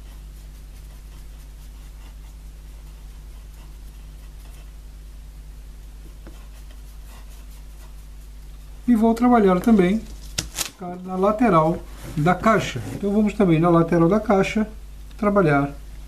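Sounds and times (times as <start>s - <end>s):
scratchy rubbing on a frame: 0.0s - 4.8s, 6.1s - 13.4s
low electrical hum: 0.0s - 16.0s.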